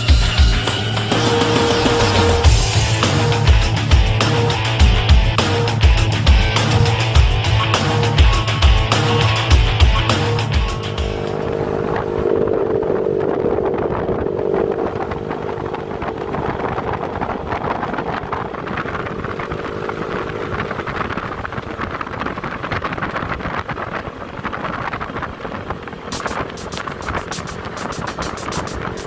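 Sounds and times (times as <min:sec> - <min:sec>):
scooter engine running: 0:00.0 - 0:29.0
wind noise on microphone: 0:10.7 - 0:29.0.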